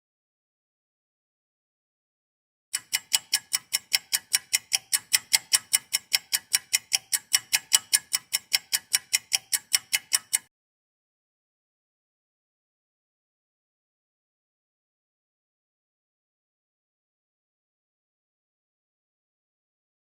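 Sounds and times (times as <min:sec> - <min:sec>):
sharp ticking: 0:02.8 - 0:10.5.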